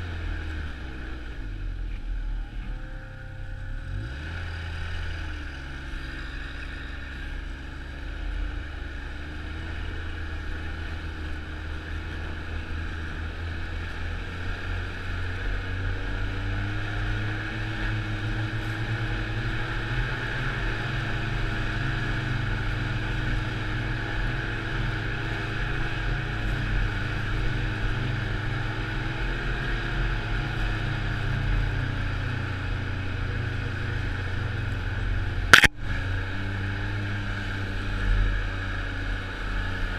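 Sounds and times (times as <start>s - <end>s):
snowmobile engine running: 2.2s - 39.9s.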